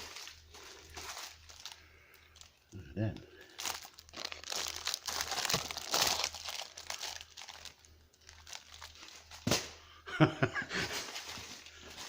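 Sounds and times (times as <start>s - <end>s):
packaging crinkling: 0.0s - 2.6s, 3.2s - 9.7s.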